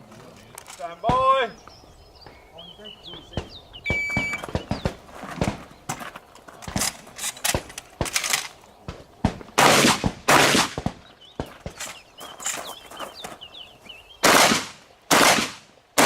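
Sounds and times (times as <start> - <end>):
shotgun shots: 3.3 - 5.7, 7.5 - 11.8, 14.2 - 16.0.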